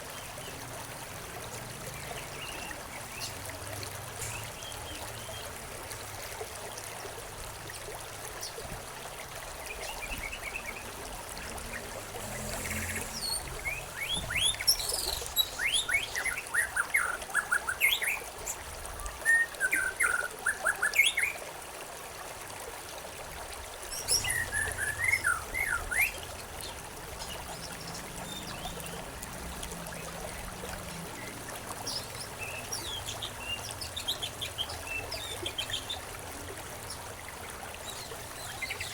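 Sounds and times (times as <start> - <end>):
trickling stream: 0.0 - 38.9
songbirds chirping: 9.6 - 18.6, 23.9 - 38.9.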